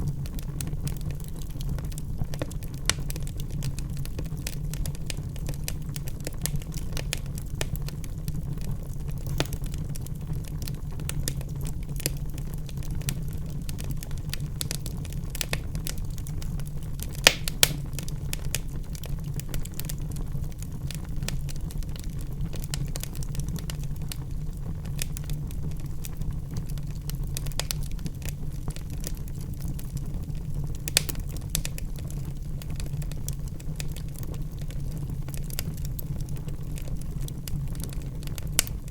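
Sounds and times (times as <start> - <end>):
fireplace fire crackling: 0.0 - 38.9
sharp fire pops: 9.1 - 12.2, 13.8 - 19.3, 27.4 - 28.3, 30.9 - 31.8.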